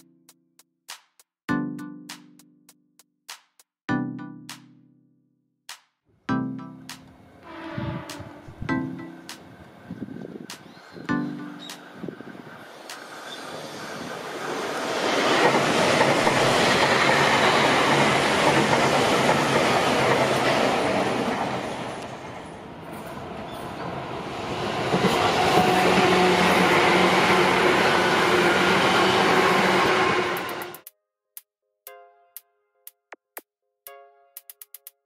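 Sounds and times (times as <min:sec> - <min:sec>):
train wheels clattering on rails: 0:12.8 - 0:22.2, 0:24.8 - 0:30.8.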